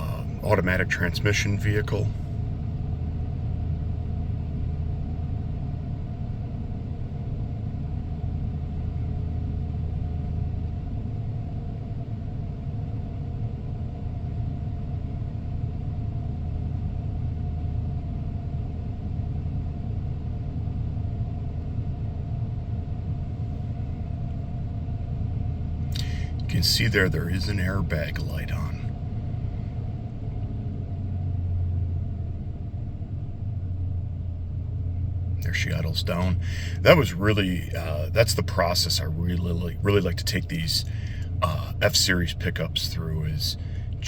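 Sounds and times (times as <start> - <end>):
engine idling: 0.0 - 44.0.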